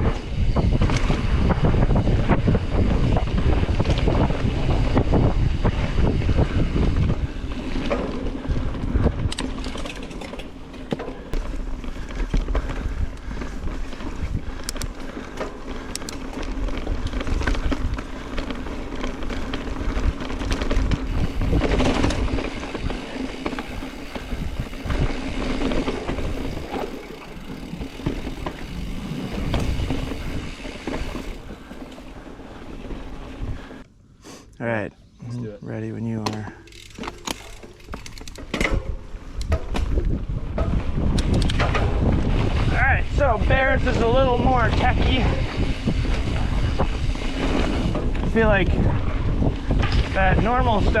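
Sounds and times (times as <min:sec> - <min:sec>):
wind rushing over microphone: 0:00.0 - 0:09.7, 0:11.3 - 0:31.7, 0:38.7 - 0:51.0
low tyre rumble: 0:00.0 - 0:33.8
bike clicks and rattles: 0:00.0 - 0:33.9, 0:36.1 - 0:51.0.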